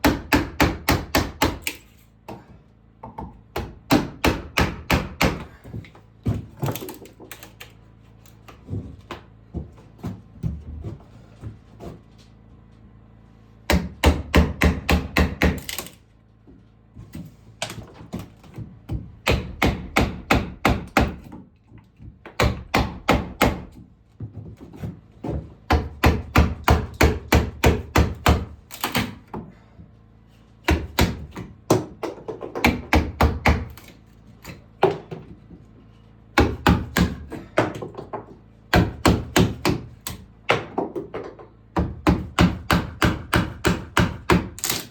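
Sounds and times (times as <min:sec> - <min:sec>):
hammer striking wood: 0:00.0 - 0:01.8, 0:03.0 - 0:05.6, 0:13.7 - 0:15.9, 0:18.5 - 0:21.4, 0:22.2 - 0:23.8, 0:25.3 - 0:29.4, 0:30.7 - 0:33.9, 0:36.4 - 0:44.9.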